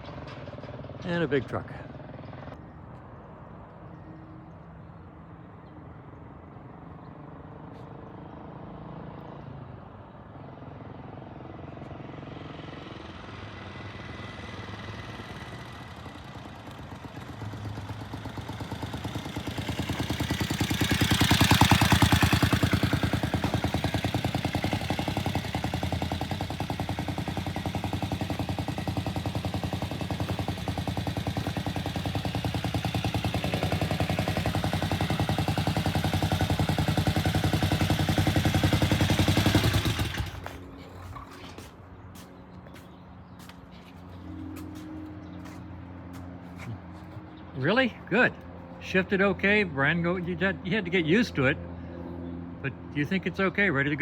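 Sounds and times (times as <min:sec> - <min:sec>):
motorcycle engine running: 0:12.0 - 0:41.4.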